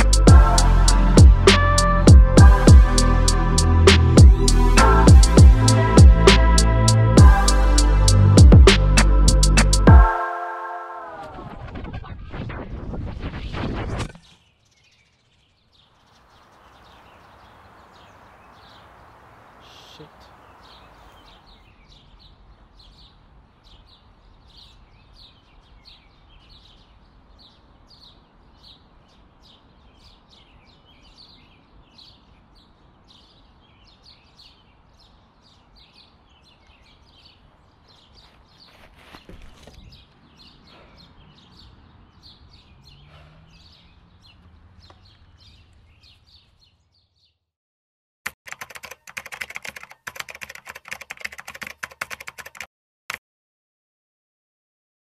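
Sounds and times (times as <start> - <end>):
bird chirping: 14.2 - 47.5
keyboard typing clicks: 48.3 - 52.7.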